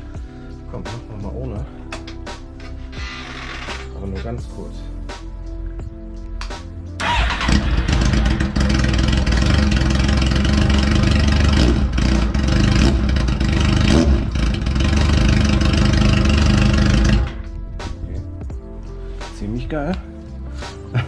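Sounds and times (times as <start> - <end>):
motorcycle engine running loudly: 7.0 - 17.5.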